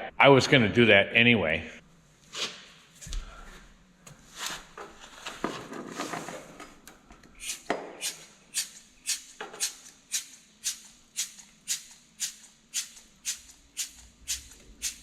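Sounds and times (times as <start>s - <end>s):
shaker beat: 7.4s - 15.0s.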